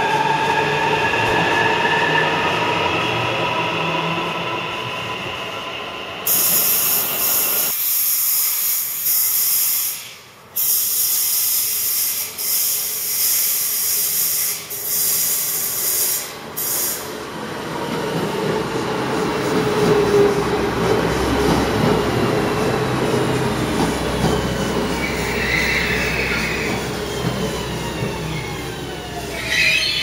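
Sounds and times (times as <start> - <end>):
train rumble in tunnel: 0.0 - 30.0
train running past: 0.0 - 30.0
loud high hiss: 6.3 - 17.1.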